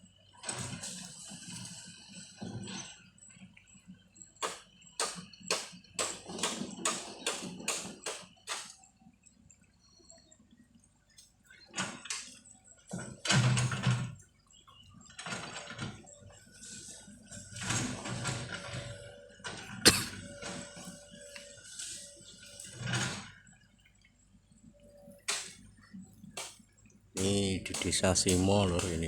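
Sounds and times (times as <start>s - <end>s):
sharp knocks: 27.2s - 29.0s.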